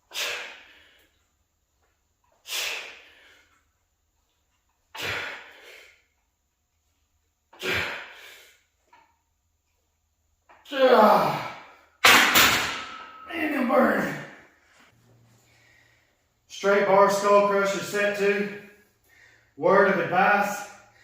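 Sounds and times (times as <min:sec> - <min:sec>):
man breathing out forcefully: 0:00.1 - 0:01.1, 0:02.5 - 0:03.5, 0:05.0 - 0:06.0, 0:07.6 - 0:08.6.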